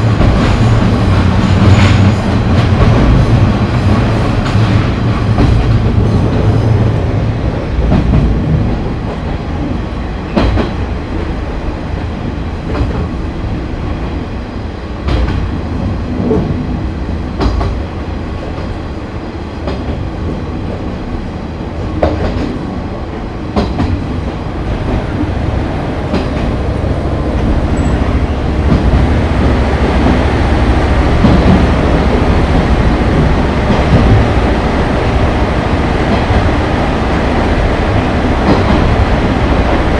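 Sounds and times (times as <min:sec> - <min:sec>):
diesel railcar engine drone: 0:00.0 - 0:39.9.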